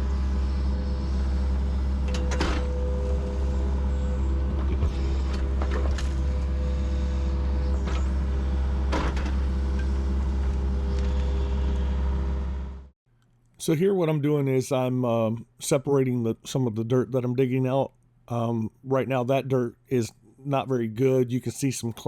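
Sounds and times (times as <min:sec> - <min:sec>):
excavator diesel engine running: 0:00.0 - 0:12.9.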